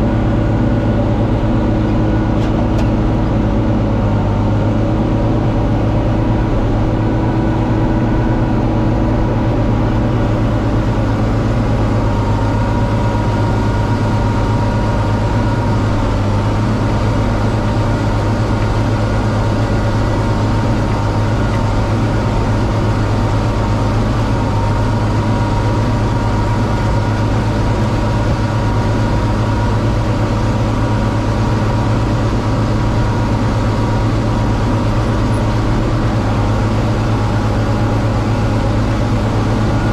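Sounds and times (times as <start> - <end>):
round baler working: 0.0 - 39.9
tractor diesel engine droning: 0.0 - 39.9.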